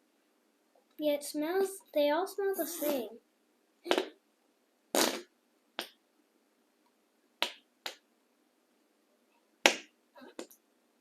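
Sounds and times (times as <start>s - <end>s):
slime air pops: 3.9s - 4.2s, 4.9s - 6.0s, 9.6s - 9.9s.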